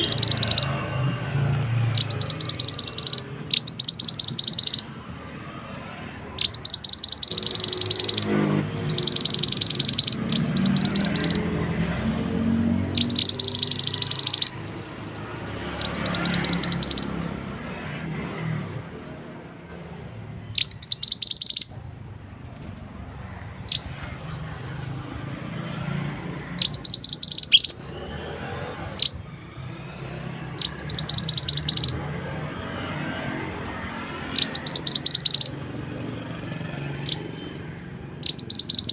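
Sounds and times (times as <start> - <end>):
songbird singing a rolling trill: 0.0 - 0.9, 1.8 - 4.9, 6.4 - 17.4, 20.4 - 21.9, 23.7 - 28.0, 30.1 - 32.1, 34.2 - 35.6, 36.9 - 37.5, 38.2 - 38.9.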